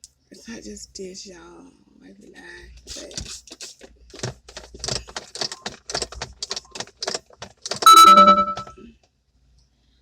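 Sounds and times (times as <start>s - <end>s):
small clicks and rattles: 2.9s - 7.9s.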